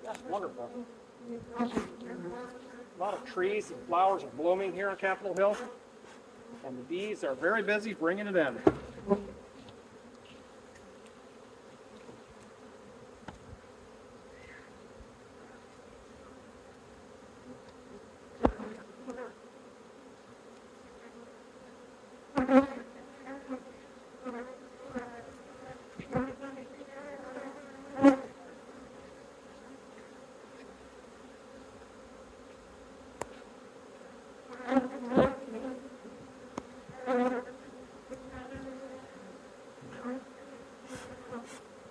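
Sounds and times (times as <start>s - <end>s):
honeybees buzzing: 0.0s - 41.9s
sharp knocks: 8.6s - 9.1s.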